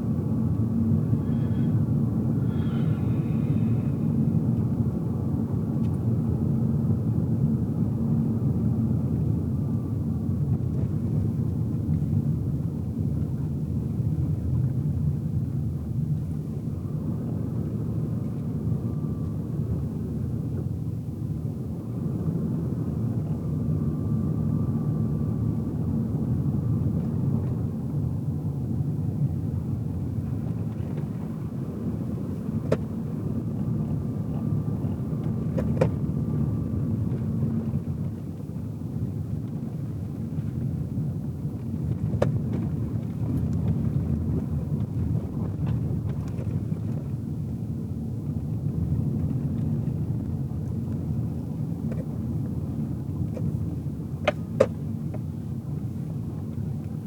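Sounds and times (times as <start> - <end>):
car tyres and engine rumbling: 0.0 - 4.8, 29.6 - 38.2.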